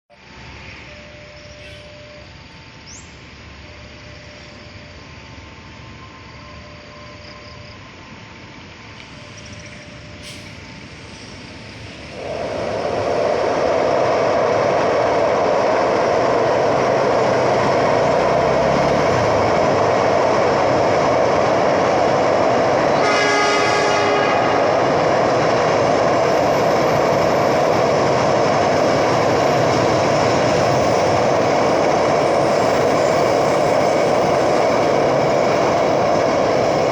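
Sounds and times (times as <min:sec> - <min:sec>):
train wheels rumbling on rails: 0:00.1 - 0:36.9
train horn blast: 0:22.9 - 0:24.8.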